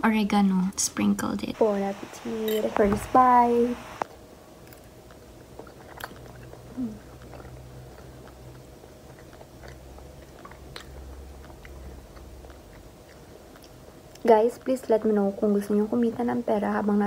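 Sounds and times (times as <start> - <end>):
steady low hum: 0.0 - 17.0
person chewing: 4.6 - 14.2.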